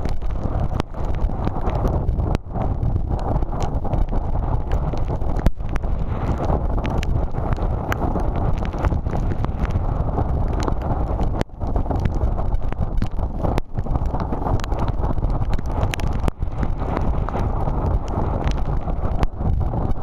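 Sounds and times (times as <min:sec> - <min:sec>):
crackles: 0:00.0 - 0:20.0
strong wind on microphone: 0:00.0 - 0:20.0.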